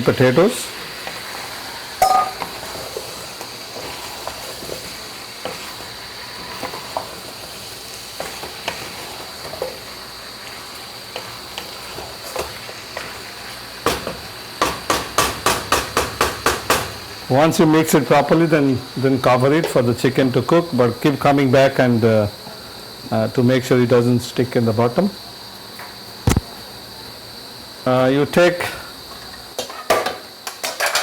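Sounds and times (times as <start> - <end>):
food sizzling in hot oil: 0.0 - 23.7, 27.4 - 31.0
spoon knocking on a pot: 2.0 - 2.5, 14.6 - 16.9.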